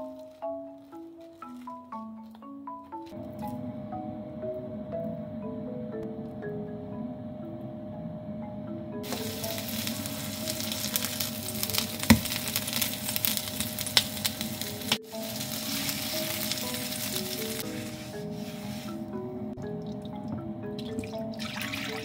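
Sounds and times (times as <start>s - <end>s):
soft music with mallet notes: 0.0s - 13.8s, 14.6s - 22.0s
patties sizzling in oil: 9.0s - 17.8s.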